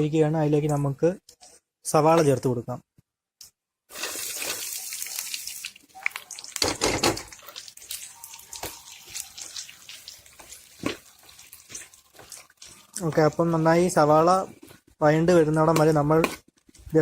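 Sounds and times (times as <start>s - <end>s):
onions sizzling in hot oil: 3.9s - 14.1s
stirring in a pan: 3.9s - 17.0s.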